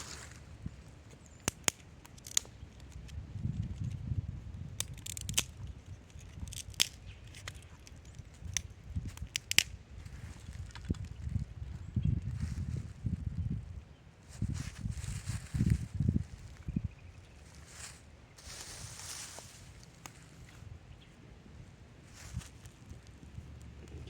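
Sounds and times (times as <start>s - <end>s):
dry twigs snapping: 0.0s - 4.0s, 4.6s - 11.4s, 17.9s - 20.6s.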